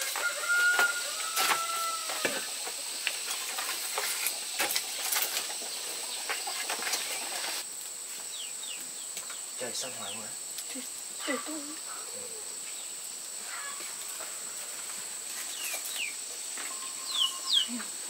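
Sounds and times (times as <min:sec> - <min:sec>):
bird calling: 0:15.5 - 0:18.0.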